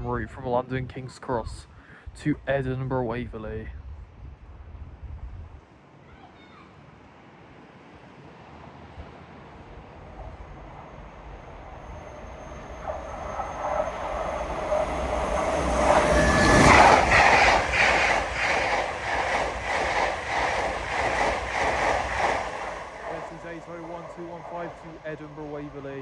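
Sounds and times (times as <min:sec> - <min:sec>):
train rumble: 0:08.3 - 0:26.0
rhythmic clatter of train wheels: 0:08.6 - 0:26.0.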